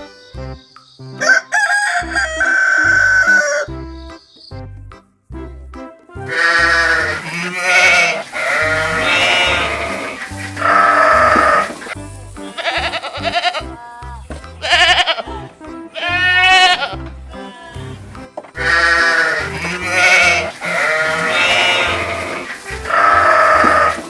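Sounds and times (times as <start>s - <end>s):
background music with bass line: 0.0s - 24.0s
goat or sheep bleating: 6.3s - 12.0s, 12.6s - 13.8s, 14.6s - 24.0s.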